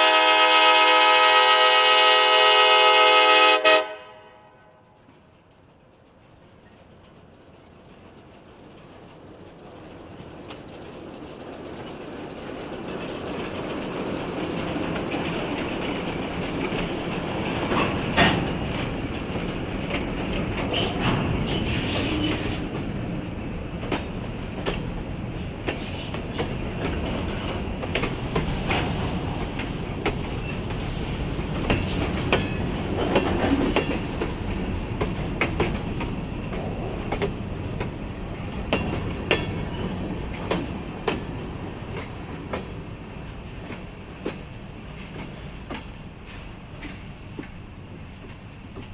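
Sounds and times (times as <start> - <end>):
train wheels clicking over rail joints: 5.0 - 48.9.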